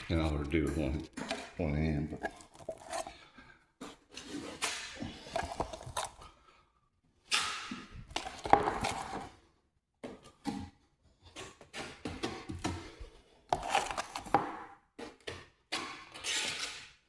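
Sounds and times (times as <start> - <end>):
drywall knife scraping: 0.0 - 6.4, 10.5 - 17.0.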